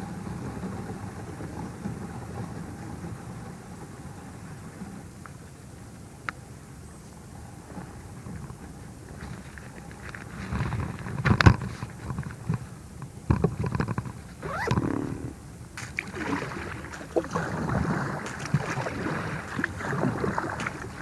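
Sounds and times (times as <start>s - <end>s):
short gliding squeal: 14.4s - 15.4s.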